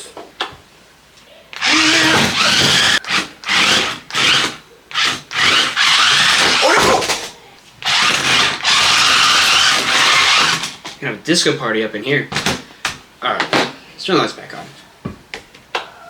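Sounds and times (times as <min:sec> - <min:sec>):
toy car electric motors whirring: 0:01.6 - 0:10.9.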